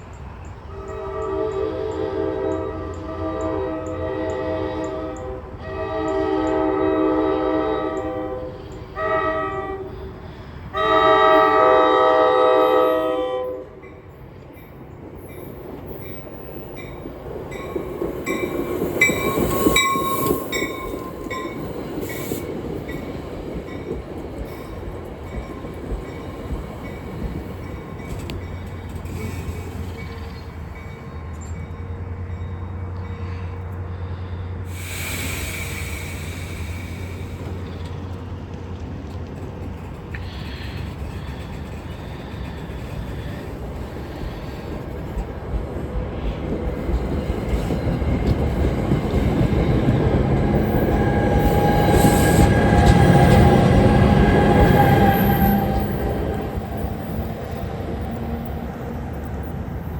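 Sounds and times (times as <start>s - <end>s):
train horn blasts: 0.7s - 13.9s, 49.6s - 56.7s
wheels clicking over rail joints: 14.4s - 31.8s.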